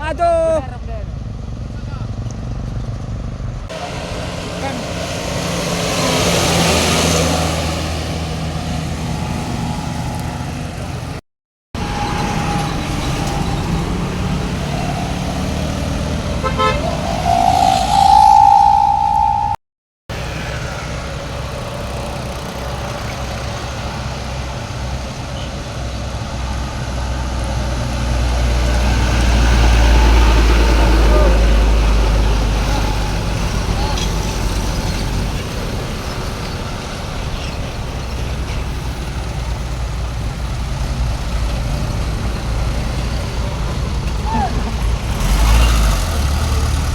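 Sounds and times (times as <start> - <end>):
vehicles driving past: 1.1 - 11.1, 11.8 - 19.6, 20.5 - 46.9
vehicle horn: 16.4 - 19.4
heavy vehicle rumble: 21.7 - 46.9.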